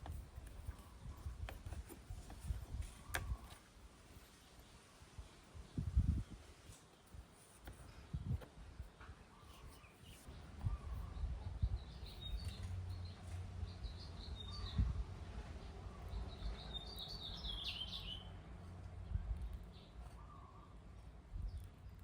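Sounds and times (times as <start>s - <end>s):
birds chirping: 5.6s - 14.9s, 15.5s - 18.4s.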